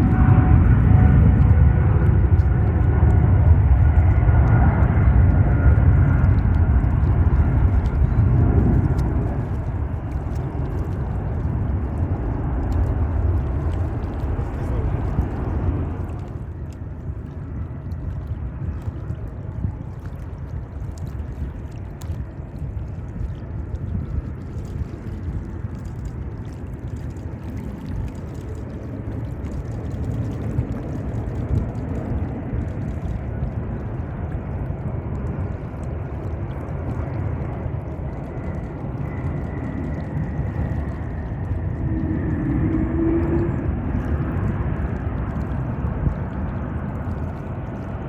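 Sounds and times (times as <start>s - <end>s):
jet engines rumbling: 0.0s - 48.0s
wind buffeting microphone: 0.0s - 48.0s.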